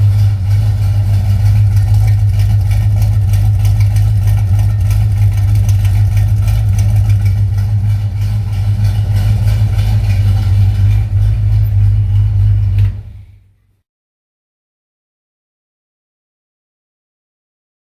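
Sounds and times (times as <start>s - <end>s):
pickup engine idling: 0.0s - 13.6s.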